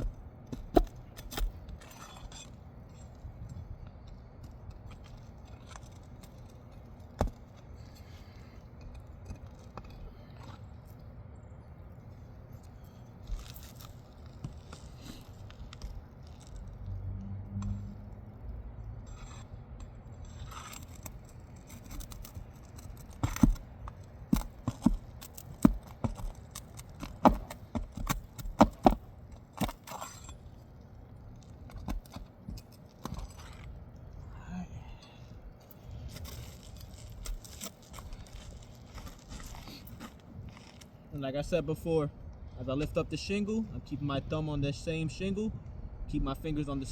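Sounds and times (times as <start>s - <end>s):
pry bar scraping shingles: 0.0s - 11.0s, 12.2s - 16.6s, 19.1s - 34.2s, 35.7s - 41.1s.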